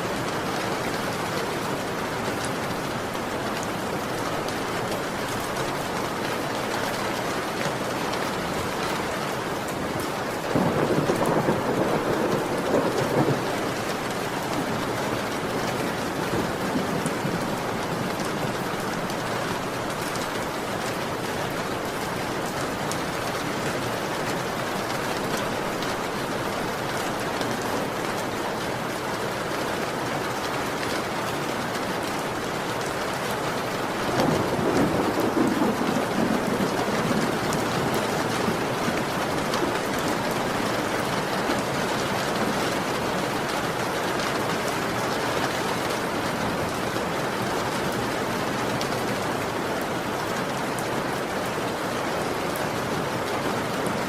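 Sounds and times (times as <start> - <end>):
heavy rain falling: 0.0 - 54.0
thunder rumbling: 10.5 - 19.2, 34.1 - 41.7.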